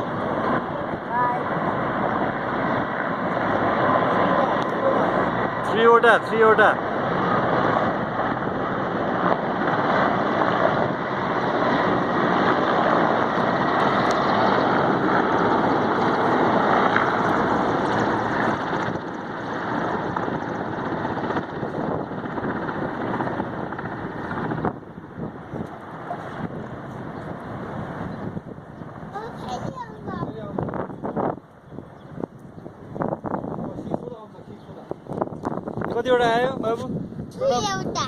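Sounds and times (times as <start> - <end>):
helicopter flying past: 0.0 - 38.0.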